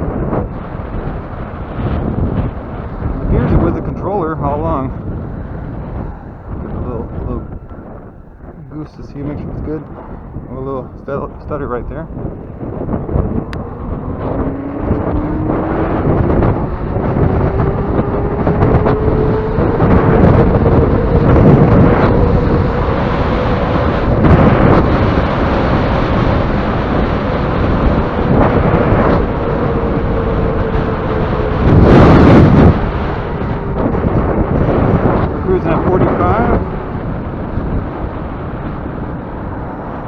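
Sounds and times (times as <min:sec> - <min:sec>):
wind rush over microphone: 0:00.0 - 0:40.0
electric motor whining: 0:12.4 - 0:39.9.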